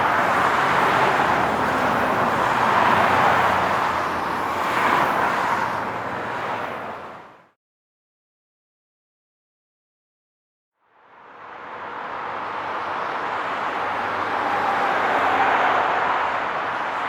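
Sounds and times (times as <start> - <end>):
highway traffic rush: 0.0 - 7.6, 10.9 - 17.0.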